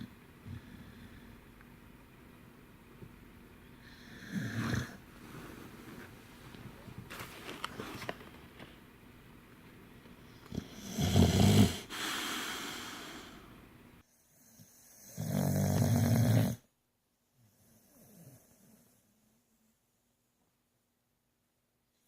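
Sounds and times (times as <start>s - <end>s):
dog snoring: 3.8s - 5.0s, 10.4s - 13.4s, 14.3s - 16.6s
long airy breath: 11.8s - 13.6s.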